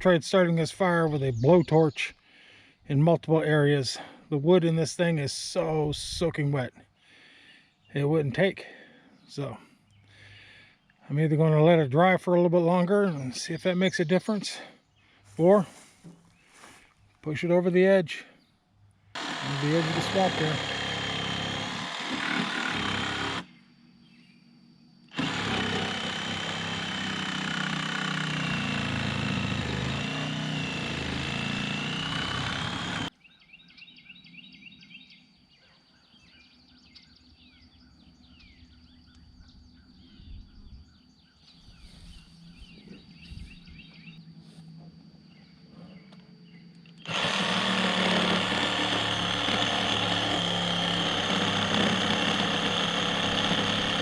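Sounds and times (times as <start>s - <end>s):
birds chirping faintly: 0.0s - 54.0s
tractor diesel engine whining: 19.2s - 23.4s, 25.1s - 33.1s, 47.0s - 54.0s.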